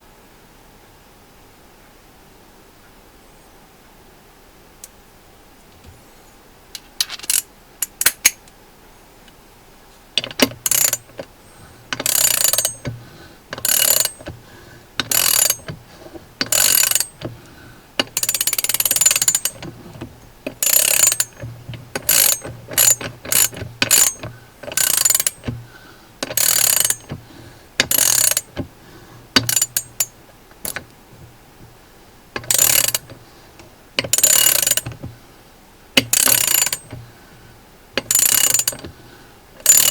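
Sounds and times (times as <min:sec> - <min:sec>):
ratchet handle clicking: 0:07.0 - 0:08.4, 0:10.2 - 0:14.4, 0:15.0 - 0:17.4, 0:18.0 - 0:25.6, 0:26.2 - 0:27.2, 0:27.8 - 0:28.7, 0:29.4 - 0:31.0, 0:32.4 - 0:35.1, 0:36.0 - 0:37.0, 0:38.0 - 0:39.0, 0:39.6 - 0:39.9.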